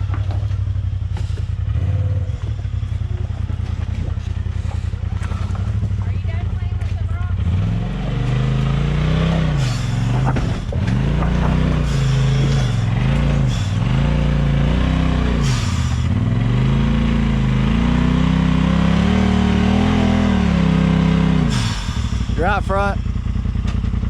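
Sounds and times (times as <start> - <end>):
off-road vehicle engine revving: 0.0 - 24.0
knocks: 9.9 - 12.9.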